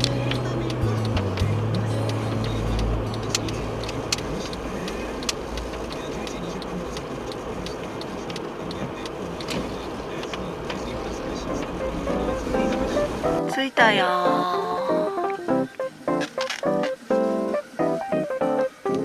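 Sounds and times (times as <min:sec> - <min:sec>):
car road and engine noise: 0:00.0 - 0:13.4.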